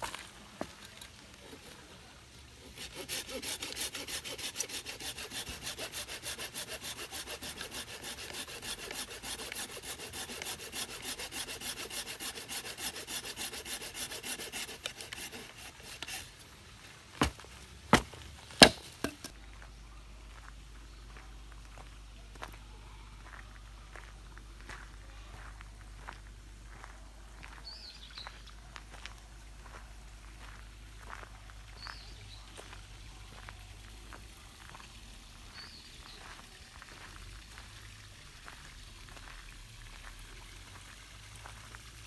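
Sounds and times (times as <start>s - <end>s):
hand saw cutting wood: 1.4s - 16.5s, 17.2s - 19.4s
wood knocking: 17.2s - 19.4s.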